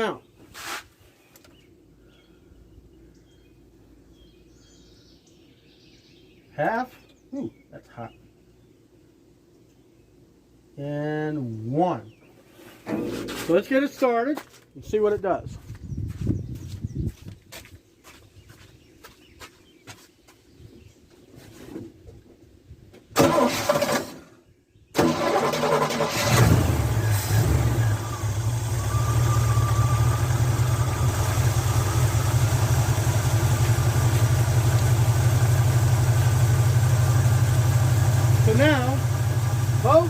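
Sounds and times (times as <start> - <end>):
engine cranking: 23.2 - 24.2, 25.0 - 27.9
car engine idling: 25.1 - 40.0.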